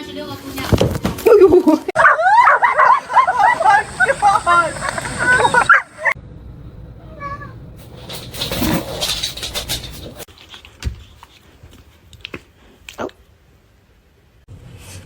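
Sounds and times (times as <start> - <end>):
rustling and scuffling: 0.4 - 6.2, 7.2 - 12.9
pet animal crying: 2.0 - 6.2, 7.0 - 7.6.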